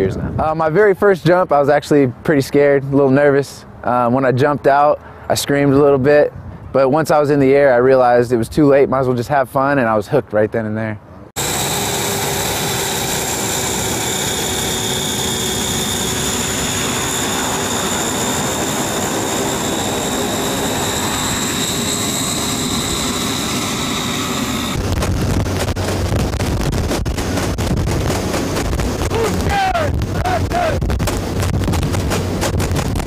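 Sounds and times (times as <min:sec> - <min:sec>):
aircraft engines droning: 0:11.3 - 0:33.0
high-pitched whine: 0:11.4 - 0:33.0
rushing noise: 0:11.4 - 0:33.0.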